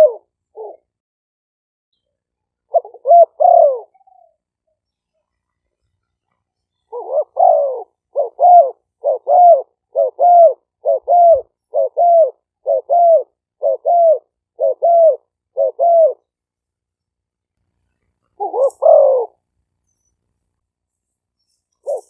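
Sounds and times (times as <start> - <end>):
dove cooing: 0.0 - 0.9, 2.7 - 4.4, 6.9 - 16.3, 18.4 - 19.4, 21.8 - 22.0.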